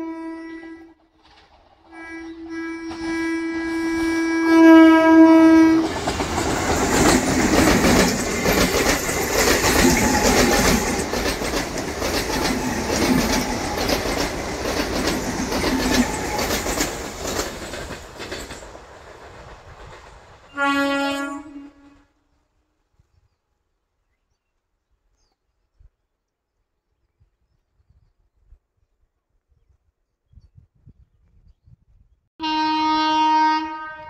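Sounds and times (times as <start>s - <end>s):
train horn: 0.0s - 1.0s, 1.9s - 6.2s, 9.8s - 11.0s, 20.5s - 22.2s, 32.4s - 34.0s
train wheels clattering over joints: 1.1s - 1.9s, 5.8s - 20.6s.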